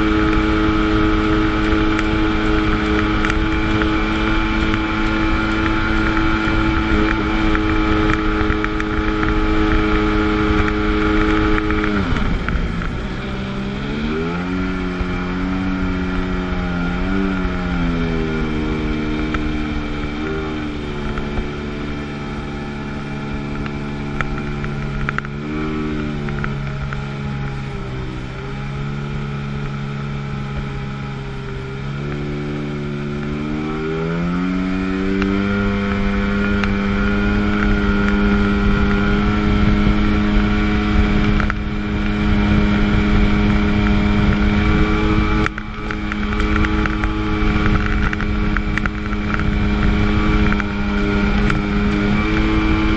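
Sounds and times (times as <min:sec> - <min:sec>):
jet ski engine revving: 0:00.0 - 0:52.9.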